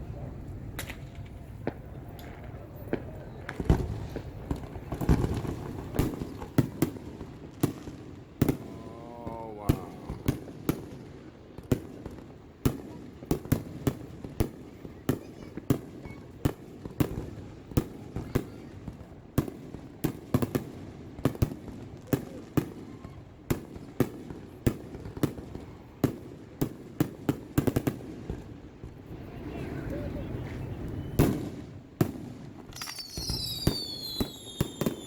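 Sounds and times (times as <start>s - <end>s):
continuous rumble: 0.0s - 11.0s
firework shells bursting: 31.2s - 35.0s.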